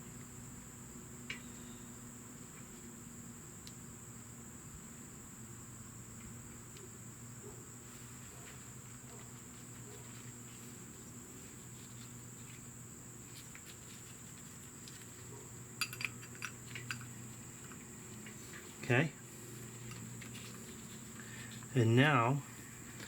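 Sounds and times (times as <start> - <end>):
light clicks of metal parts: 15.8 - 18.9.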